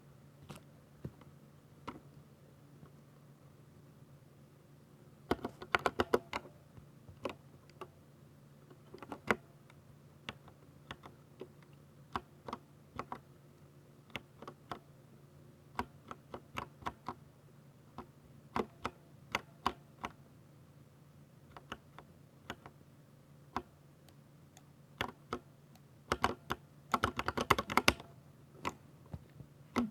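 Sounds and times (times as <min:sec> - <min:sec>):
typing on mechanical keyboard: 0:05.3 - 0:06.4, 0:26.1 - 0:28.0.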